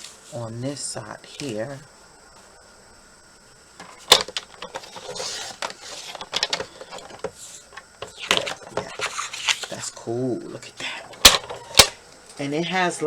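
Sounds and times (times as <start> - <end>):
paper rustling: 3.8 - 10.1.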